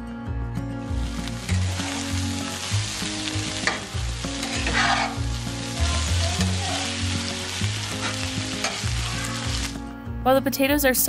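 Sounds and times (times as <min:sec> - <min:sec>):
soft background music: 0:00.0 - 0:11.0
vegetables sizzling in a skillet: 0:00.8 - 0:09.8
metal spatula scraping: 0:03.5 - 0:05.4, 0:08.0 - 0:09.6.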